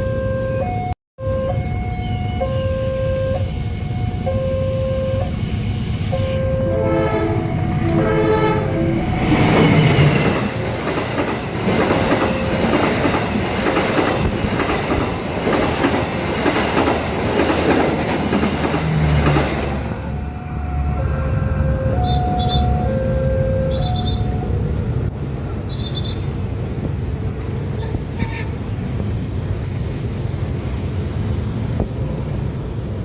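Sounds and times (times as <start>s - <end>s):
crossing warning alarm: 0.0s - 26.3s
train wheels clacking over rail joints: 9.4s - 19.9s.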